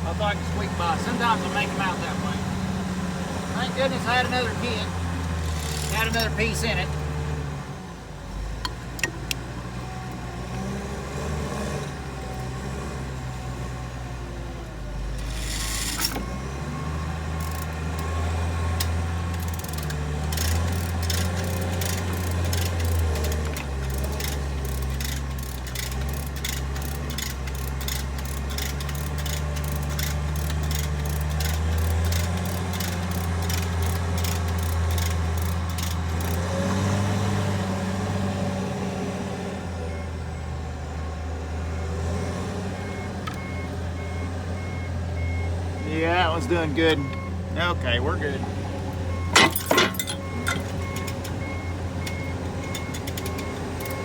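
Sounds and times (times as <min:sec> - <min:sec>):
heavy diesel engine running: 0:00.0 - 0:11.1, 0:11.9 - 0:54.0
sharp ticks: 0:18.8 - 0:36.5.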